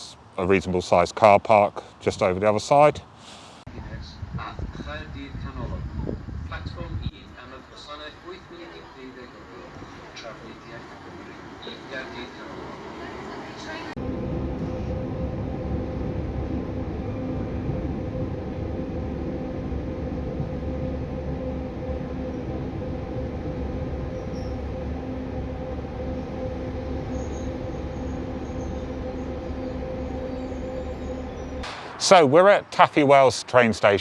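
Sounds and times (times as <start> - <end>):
passenger train running: 3.7 - 32.3
faint high squeals: 14.5 - 31.6.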